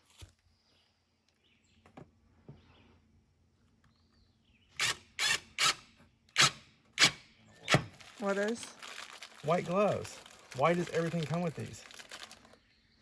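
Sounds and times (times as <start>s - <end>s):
packaging rustling and tearing: 7.9s - 12.6s.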